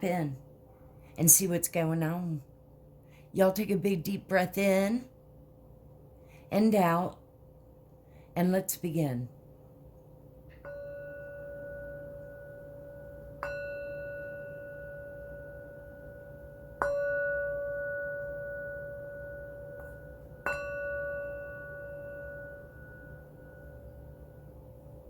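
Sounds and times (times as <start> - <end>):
singing bowl ringing: 10.5 - 25.0.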